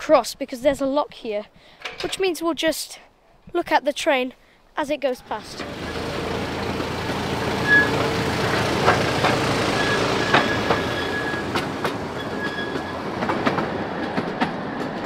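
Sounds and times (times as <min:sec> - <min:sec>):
wheels clicking over rail joints: 0:05.2 - 0:15.0
high wheel squeals: 0:05.4 - 0:13.3
miniature train running: 0:05.4 - 0:15.0.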